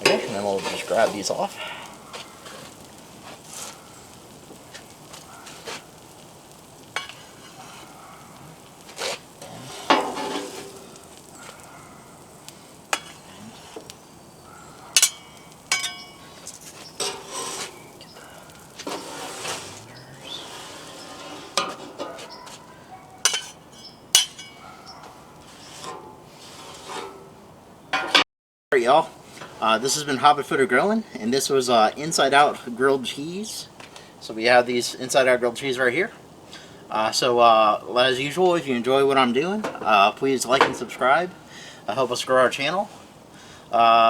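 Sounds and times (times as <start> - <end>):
metal spatulas scraping on griddle: 0.0 - 11.7, 12.8 - 14.0, 14.9 - 27.3
faint sizzle: 0.0 - 27.6, 28.8 - 44.0.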